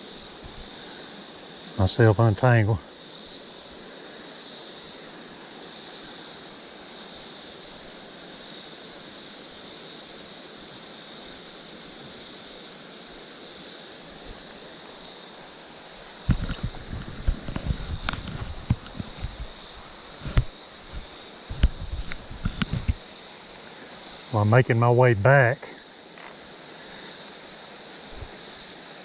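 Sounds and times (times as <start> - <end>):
high insect drone: 0.0 - 29.0
creek water running: 13.4 - 29.0.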